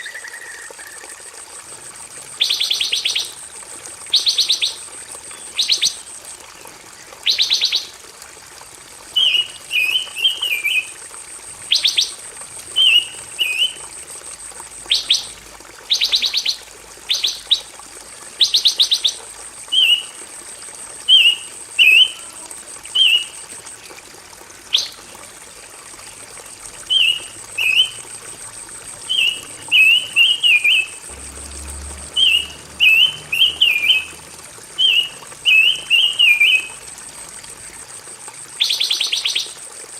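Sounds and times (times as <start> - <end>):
songbird chirping: 32.1 - 34.2, 34.8 - 36.8.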